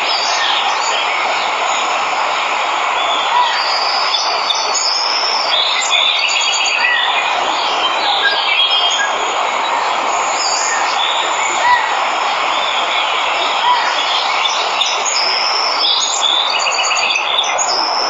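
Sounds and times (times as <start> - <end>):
waterfall rushing: 0.0 - 18.0
birds chirping and whistling: 3.0 - 9.4, 10.1 - 18.0.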